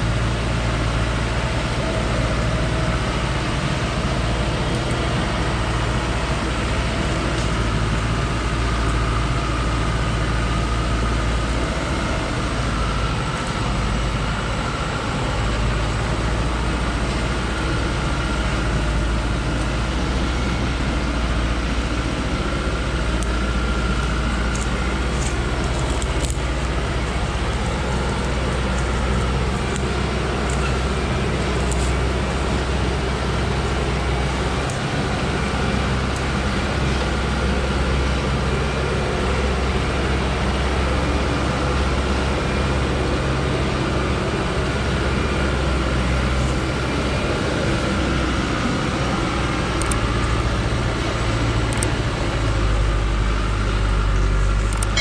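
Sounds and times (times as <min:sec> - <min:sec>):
truck engine running: 0:00.0 - 0:55.0
light high-pitched clicks: 0:54.6 - 0:55.0.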